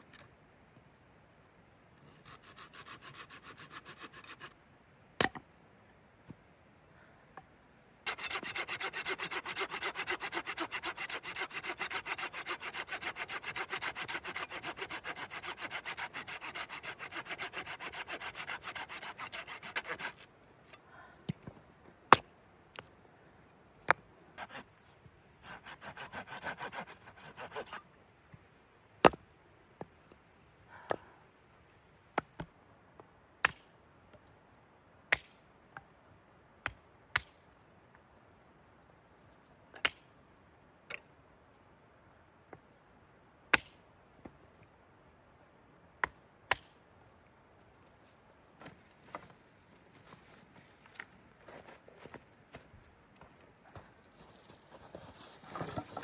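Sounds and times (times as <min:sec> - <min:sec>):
hand saw cutting wood: 0:02.2 - 0:04.5, 0:08.1 - 0:20.3, 0:24.4 - 0:24.6, 0:25.4 - 0:27.8, 0:54.9 - 0:56.0.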